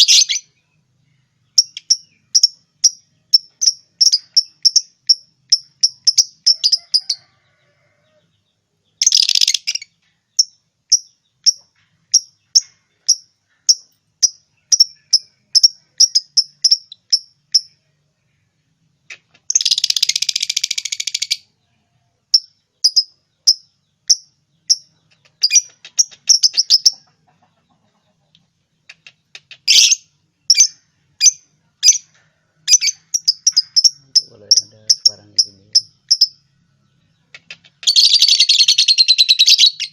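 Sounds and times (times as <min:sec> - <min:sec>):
lovebirds chirping: 0:00.0 - 0:39.9
lovebirds harsh chattering: 0:01.4 - 0:07.2, 0:09.0 - 0:17.7, 0:18.9 - 0:21.5, 0:22.3 - 0:36.4, 0:37.0 - 0:39.9.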